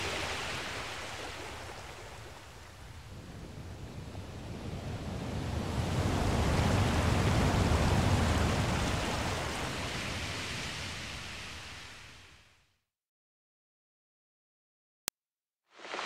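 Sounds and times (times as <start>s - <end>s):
ocean wave washing in: 0.0s - 12.5s, 15.8s - 16.0s.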